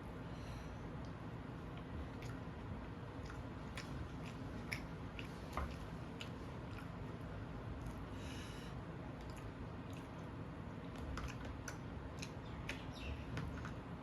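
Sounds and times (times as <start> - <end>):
person chewing food: 1.7 - 8.2, 9.1 - 13.9
small mouth clicks: 1.8 - 2.6, 3.2 - 7.0.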